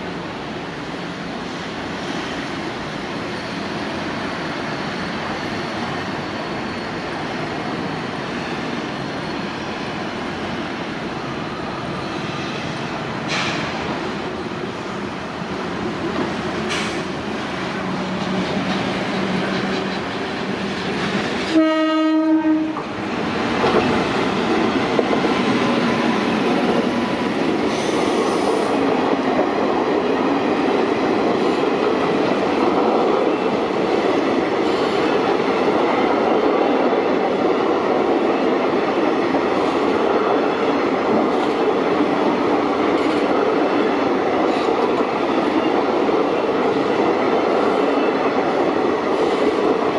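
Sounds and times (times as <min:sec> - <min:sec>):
rush of passing train coaches: 0:00.0 - 0:49.9
train horn blast: 0:21.5 - 0:22.9.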